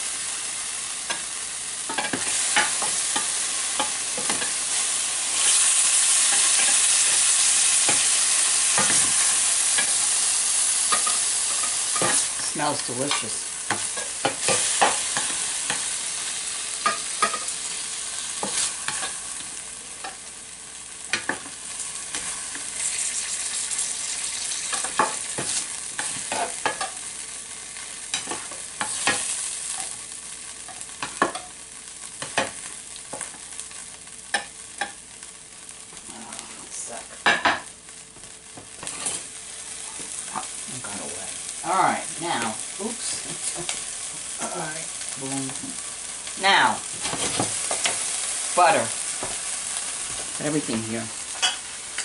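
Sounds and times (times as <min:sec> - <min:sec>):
meat sizzling in a frying pan: 0:00.0 - 0:52.0
utensil scraping a pan: 0:38.8 - 0:40.0.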